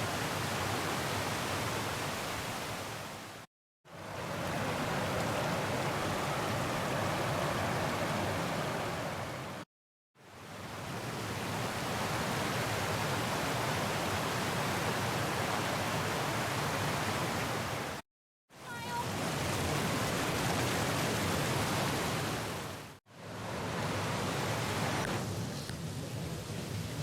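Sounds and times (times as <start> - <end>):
water rushing over ledge: 4.0 - 9.6, 10.9 - 18.0, 18.9 - 25.4.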